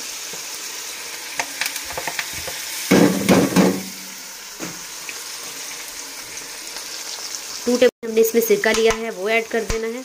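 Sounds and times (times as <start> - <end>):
chicken sizzling in hot oil: 0.0 - 10.0.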